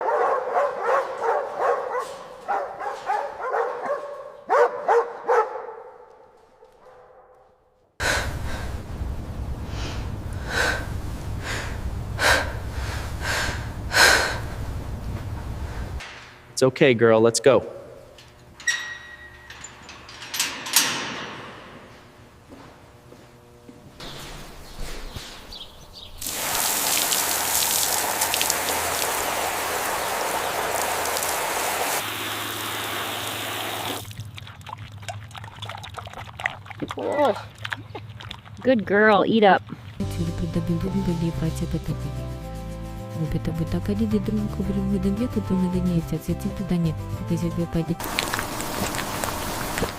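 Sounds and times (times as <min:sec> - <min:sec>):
steady low rumble: 0:08.0 - 0:16.0
hiss of spraying water: 0:26.2 - 0:34.1, 0:48.0 - 0:49.9.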